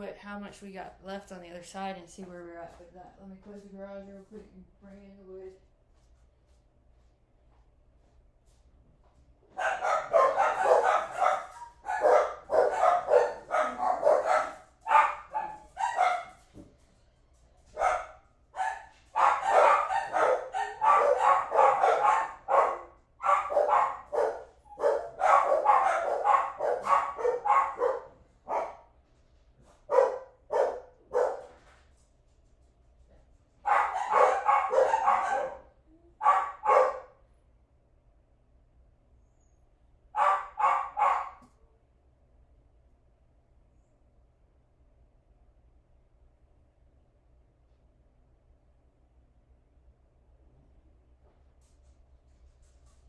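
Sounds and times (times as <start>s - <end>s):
dog barking: 9.5s - 16.4s, 17.8s - 28.9s, 29.9s - 31.6s, 33.6s - 37.2s, 40.1s - 41.5s.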